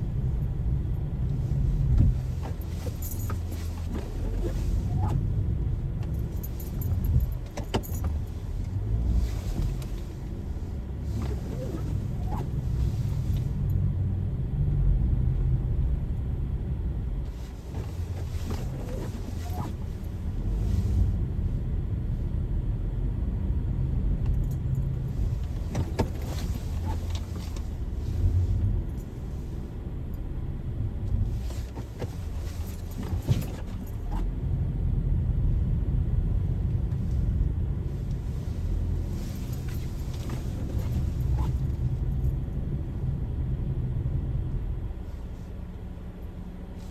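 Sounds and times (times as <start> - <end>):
road and engine rumble: 0.0 - 46.9
light rattles and clicks: 0.2 - 13.8, 24.2 - 29.5, 36.9 - 42.7.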